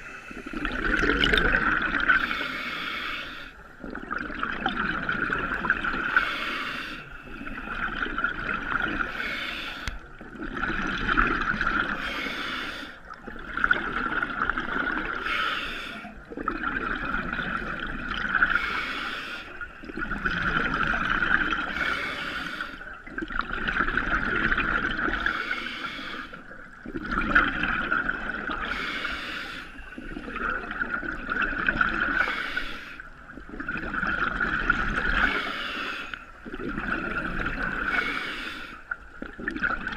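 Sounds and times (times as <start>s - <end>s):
exhaled bubbles gushing: 0.0s - 2.5s, 3.7s - 6.4s, 7.2s - 12.0s, 13.0s - 15.3s, 16.0s - 18.8s, 19.6s - 21.9s, 22.9s - 25.4s, 26.4s - 32.4s, 33.1s - 35.6s, 36.4s - 39.9s
breath hissing through regulator: 0.0s - 3.6s, 6.1s - 7.8s, 9.0s - 10.0s, 11.9s - 13.0s, 15.1s - 16.2s, 18.4s - 19.6s, 21.7s - 22.9s, 25.1s - 26.5s, 28.6s - 30.5s, 32.1s - 33.0s, 35.2s - 36.3s, 37.6s - 39.0s.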